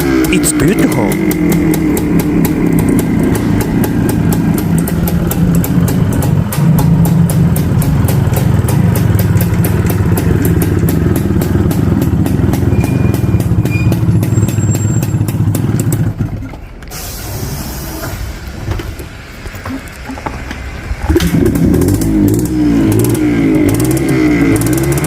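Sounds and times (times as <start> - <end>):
two-stroke engine idling: 0.0 - 16.5.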